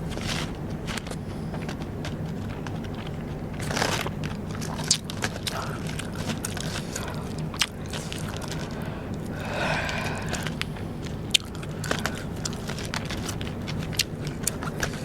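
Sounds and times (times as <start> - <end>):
rice paper crunching and chewing: 0.0 - 15.0.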